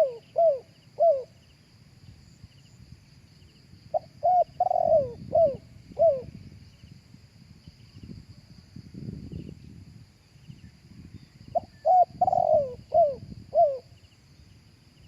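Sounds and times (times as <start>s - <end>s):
dove cooing: 0.0s - 1.4s, 3.9s - 6.4s, 11.6s - 13.9s.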